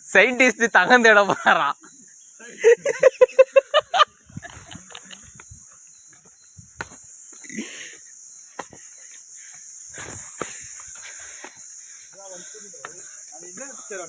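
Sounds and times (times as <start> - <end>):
insects shrilling: 0.0 - 14.0
person laughing: 2.5 - 5.4.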